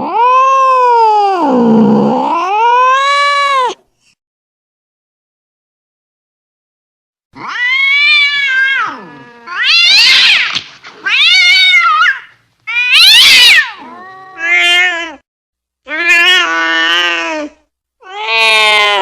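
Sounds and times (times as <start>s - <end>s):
cat yowling angrily: 0.0s - 3.8s, 7.4s - 15.2s, 15.9s - 19.0s.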